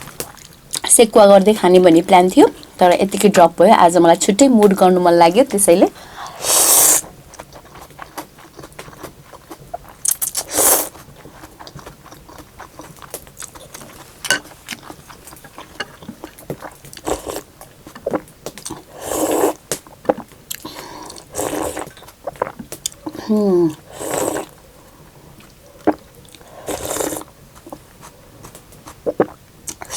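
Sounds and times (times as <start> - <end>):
loud hissy slurps: 6.4 - 7.1
soft chewing: 7.1 - 18.9, 19.6 - 29.9.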